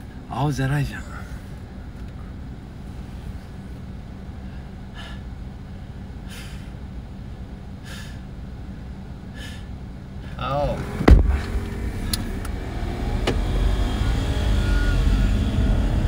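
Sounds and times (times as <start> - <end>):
car engine idling: 0.0 - 16.0
man breathing sharply: 4.3 - 5.4, 6.2 - 6.9, 7.8 - 8.4, 9.3 - 10.4.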